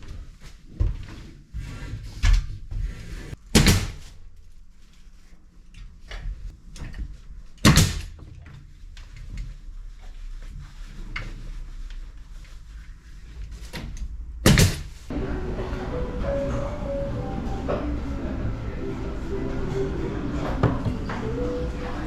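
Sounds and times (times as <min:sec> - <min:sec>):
background music: 0:15.1 - 0:22.0.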